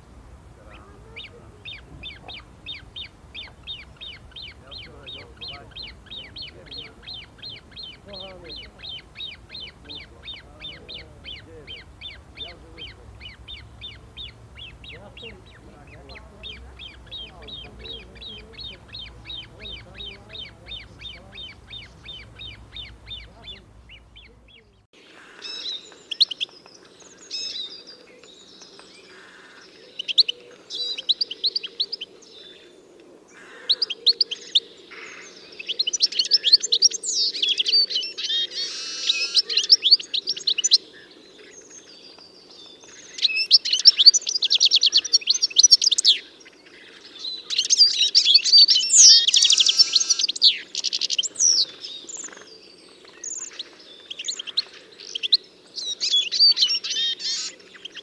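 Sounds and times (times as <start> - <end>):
faint low hum: 0.0 - 24.9
songbirds singing: 0.0 - 58.0.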